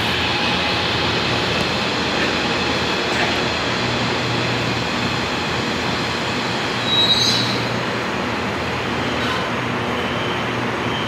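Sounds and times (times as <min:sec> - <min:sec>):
light rail train running: 0:00.0 - 0:11.0
brief high-pitched squeal: 0:06.8 - 0:07.7.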